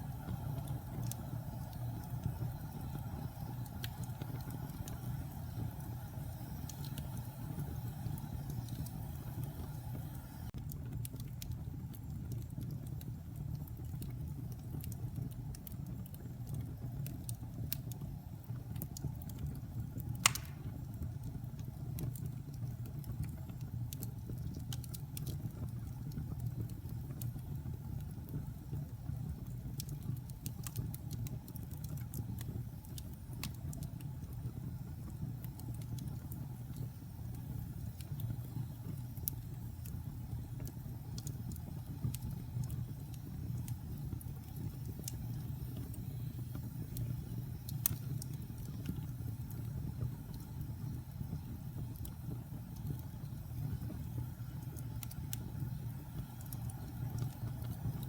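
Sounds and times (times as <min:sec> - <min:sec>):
wood fire rumbling: 0:00.0 - 0:58.0
logs crackling: 0:20.2 - 0:20.9
loud pop of burning log: 0:20.2 - 0:20.9.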